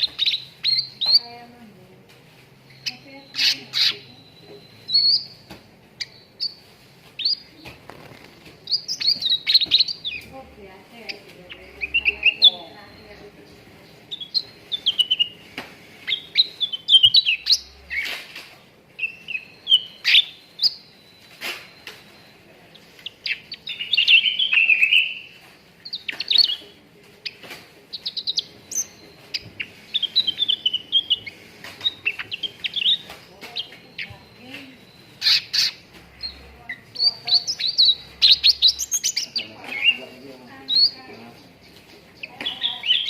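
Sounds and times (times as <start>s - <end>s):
songbird chirping and twittering: 0.0s - 43.0s.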